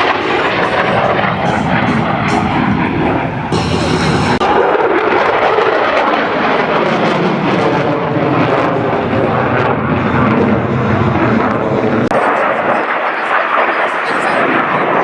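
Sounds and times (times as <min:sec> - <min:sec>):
aircraft engine flying by: 0:00.0 - 0:15.0.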